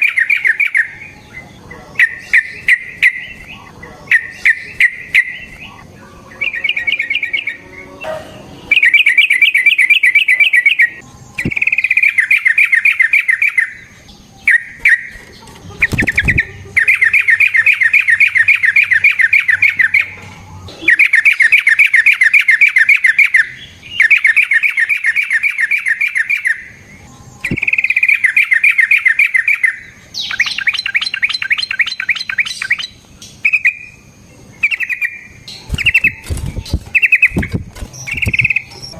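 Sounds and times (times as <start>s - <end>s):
bird singing trilled phrases: 0.0s - 38.9s.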